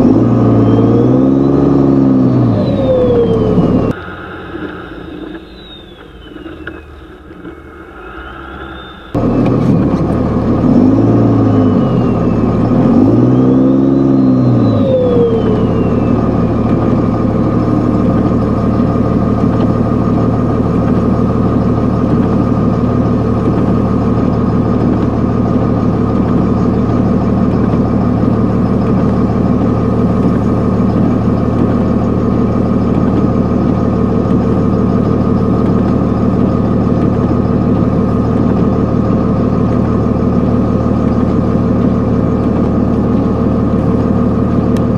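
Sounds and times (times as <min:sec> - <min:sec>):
diesel truck engine revving: 0:00.0 - 0:44.9
turbo whistle: 0:00.4 - 0:09.2, 0:10.7 - 0:18.1.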